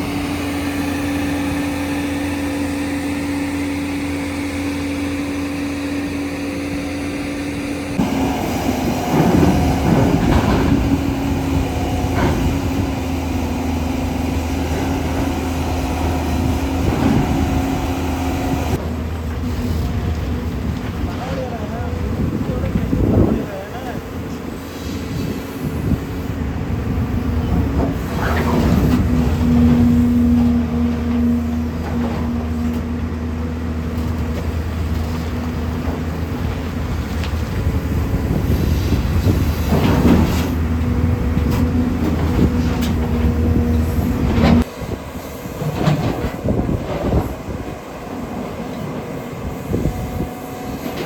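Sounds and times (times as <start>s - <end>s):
rising hydraulic whine: 0.0s - 19.9s
excavator engine running: 0.0s - 51.0s
knocks and scraping: 38.8s - 44.7s.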